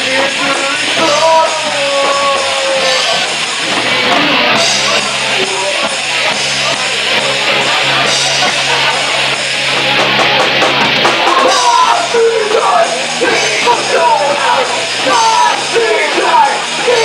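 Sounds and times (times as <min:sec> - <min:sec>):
lead vocalist singing: 0:00.0 - 0:03.3, 0:11.2 - 0:17.0
rock band playing: 0:00.0 - 0:17.0.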